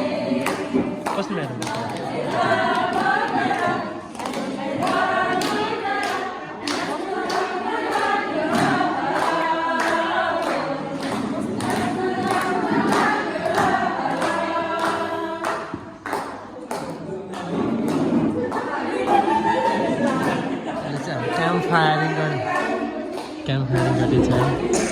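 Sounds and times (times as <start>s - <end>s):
group singing in chorus: 0.0s - 24.9s
sharp percussive hits: 23.7s - 24.9s.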